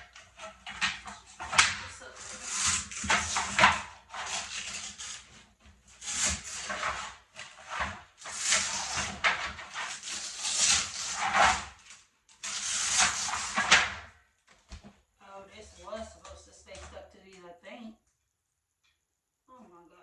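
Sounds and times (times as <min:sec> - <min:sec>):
wooden parts scraping: 0:00.0 - 0:14.9.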